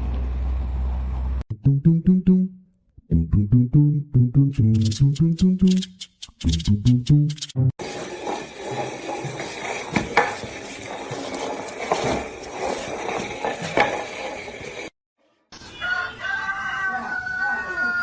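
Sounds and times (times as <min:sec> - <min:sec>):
dishes clattering and scraping: 0:07.8 - 0:14.9.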